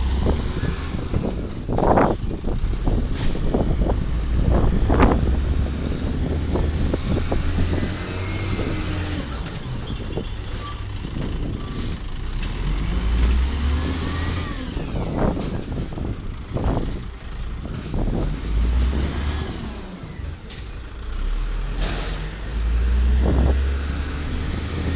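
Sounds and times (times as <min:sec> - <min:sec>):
garbage truck engine rumbling: 0:00.0 - 0:24.9.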